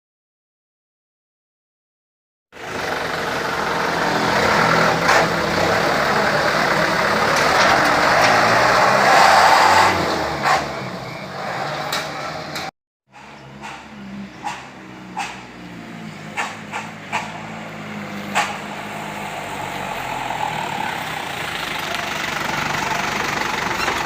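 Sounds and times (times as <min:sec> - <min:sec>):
truck engine running: 0:02.6 - 0:11.3, 0:12.0 - 0:24.0
sharp exhaust pops: 0:11.9 - 0:15.6, 0:16.3 - 0:17.5, 0:18.2 - 0:18.8.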